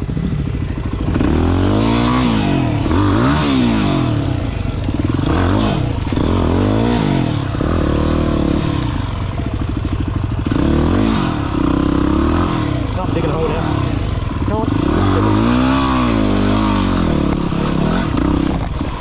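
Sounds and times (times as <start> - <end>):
dirt bike engine revving: 0.7 - 19.0
clattering and scraping: 4.6 - 12.2, 13.9 - 18.8.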